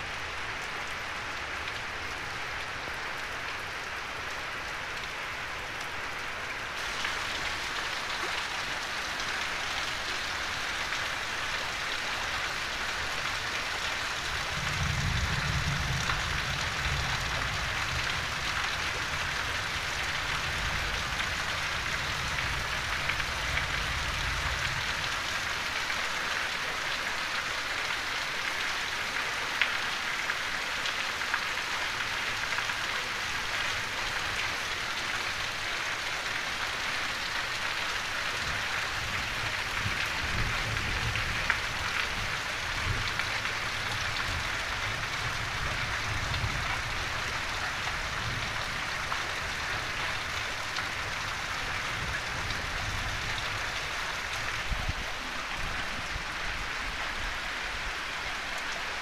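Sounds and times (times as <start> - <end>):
heavy rain on roofs: 0.0 - 59.0.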